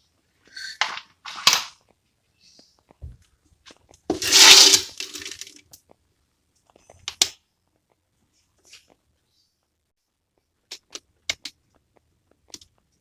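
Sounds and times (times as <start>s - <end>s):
hard objects clattering and scraping: 0.4s - 1.8s, 3.7s - 5.8s.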